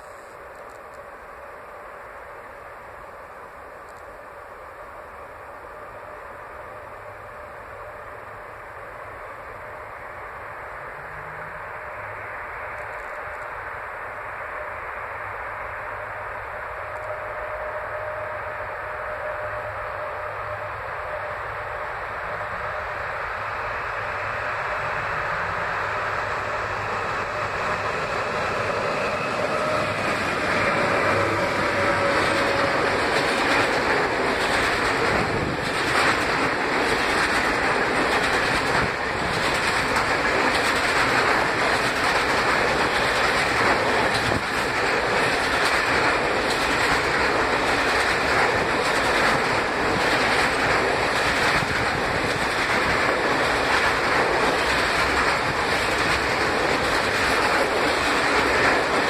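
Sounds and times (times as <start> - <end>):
freight train rolling past: 0.0 - 59.0
wheels clacking over rail joints: 29.4 - 59.0.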